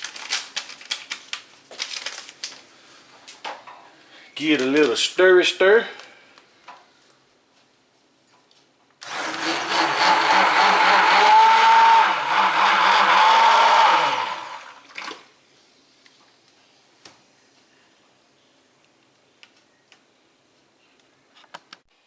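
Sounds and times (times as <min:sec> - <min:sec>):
electric mixer motor running: 0:09.0 - 0:14.8.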